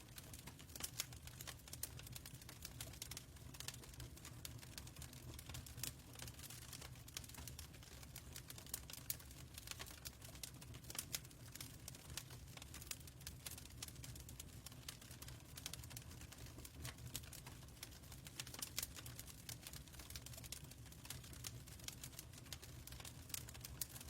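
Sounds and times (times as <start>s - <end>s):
fire crackling and popping: 0.0s - 24.0s.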